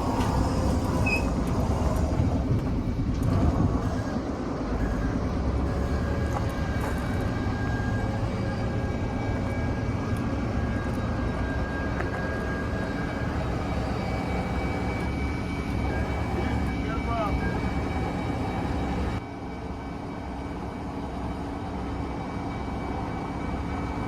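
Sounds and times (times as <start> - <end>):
diesel truck engine running: 0.0 - 19.2
faint high whine: 3.8 - 24.0.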